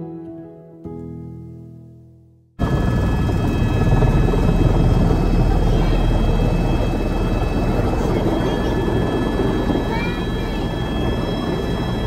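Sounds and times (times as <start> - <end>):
helicopter rotor and engine: 2.6 - 12.0.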